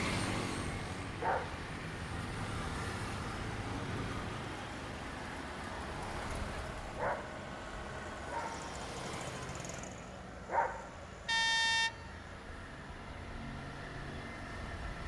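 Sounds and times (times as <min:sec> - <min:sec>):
traffic noise: 0:00.0 - 0:15.0
horn beep: 0:11.3 - 0:12.1.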